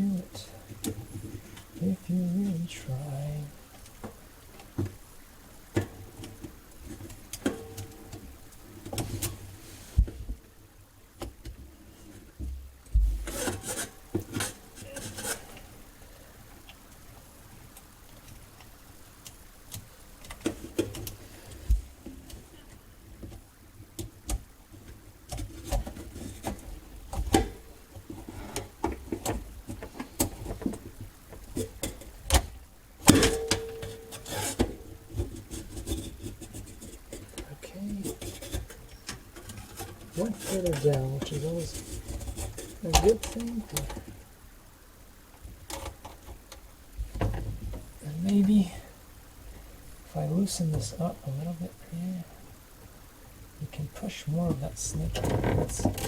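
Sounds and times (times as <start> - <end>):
drain snake cable scraping: 13.2 - 16.8, 33.2 - 44.2, 53.6 - 56.0.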